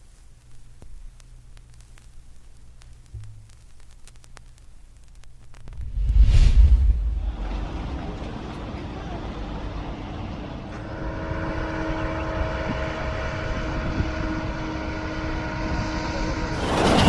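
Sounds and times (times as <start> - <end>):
vehicle engine droning: 7.0 - 16.5.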